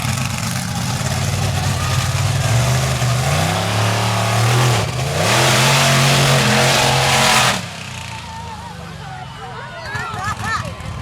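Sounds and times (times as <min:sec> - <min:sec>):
monster truck engine revving: 0:00.0 - 0:08.6.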